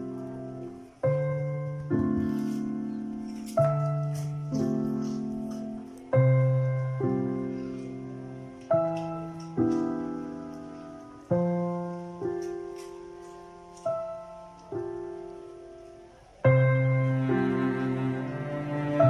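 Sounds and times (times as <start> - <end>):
slow piano chords: 0.0 - 19.0.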